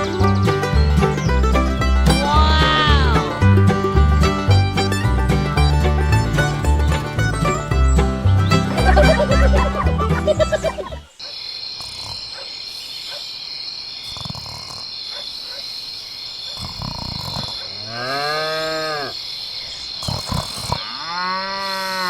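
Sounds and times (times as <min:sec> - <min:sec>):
high chirring insects: 0:08.8 - 0:21.8
cow mooing: 0:17.8 - 0:19.1, 0:20.8 - 0:22.0.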